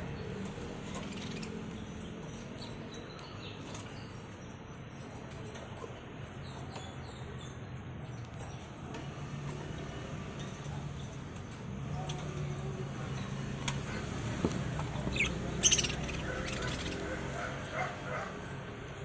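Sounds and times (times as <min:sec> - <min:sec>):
parrots chirping and squawking: 0:00.1 - 0:04.4, 0:11.9 - 0:19.0.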